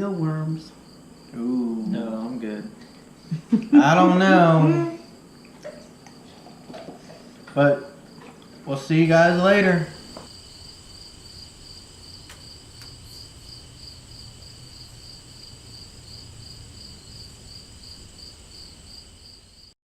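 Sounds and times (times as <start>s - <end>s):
cricket chirping: 0.0s - 19.8s
faint low hum: 0.0s - 19.8s.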